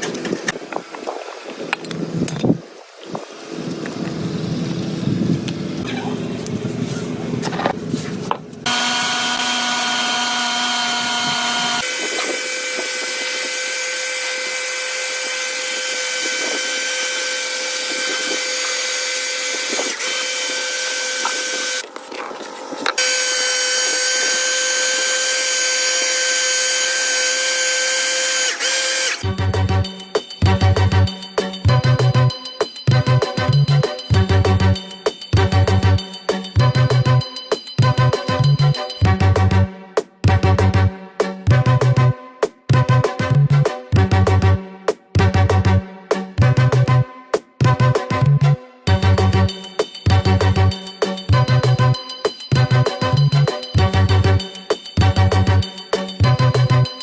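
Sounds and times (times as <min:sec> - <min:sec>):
electric power tool whining: 0:08.6 - 0:29.4.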